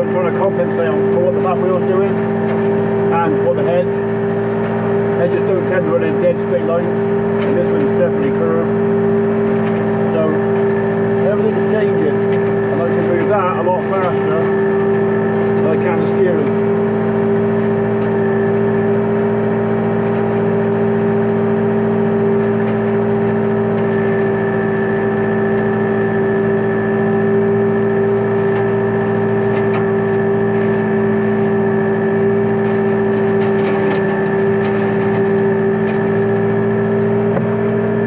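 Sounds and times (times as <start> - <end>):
ticks and crackles: 0.0 - 26.6
hedge trimmer cutting: 0.0 - 38.0
steady whine: 0.0 - 38.0
tractor engine running: 0.0 - 38.0.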